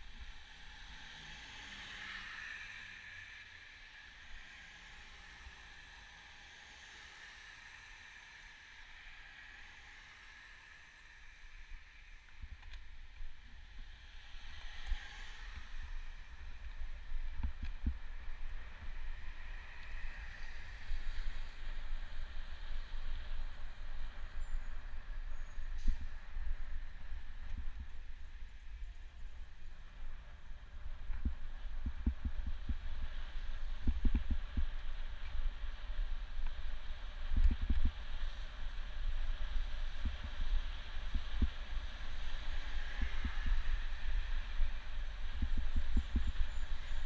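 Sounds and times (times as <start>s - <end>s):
low rumble: 15.6s - 47.0s.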